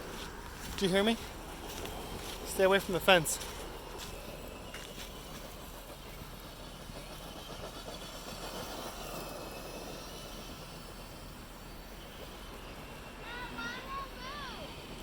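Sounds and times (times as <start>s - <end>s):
tyres on dirt: 0.0s - 7.5s.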